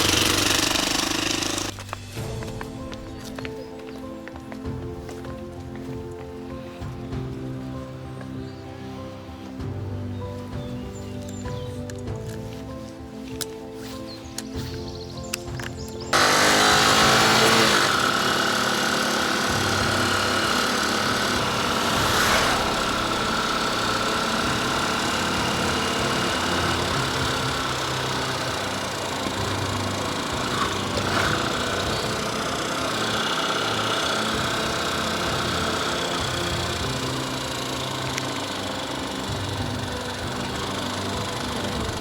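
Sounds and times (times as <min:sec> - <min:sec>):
motorcycle engine running: 0:00.0 - 0:05.2, 0:15.5 - 0:42.0
rushing noise: 0:21.0 - 0:26.6.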